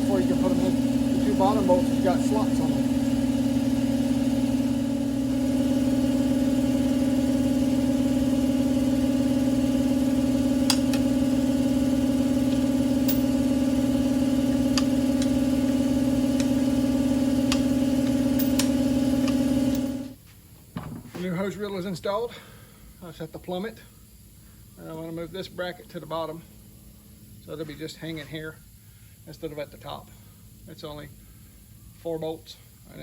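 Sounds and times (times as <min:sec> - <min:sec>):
machine humming: 0:00.0 - 0:20.2.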